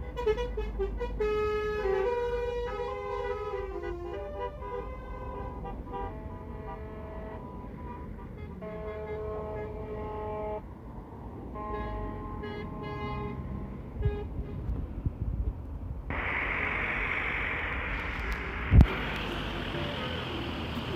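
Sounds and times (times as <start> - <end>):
low engine rumble: 13.5 - 20.9
lorry horns tooting: 16.1 - 20.9
steady hiss: 16.1 - 20.9.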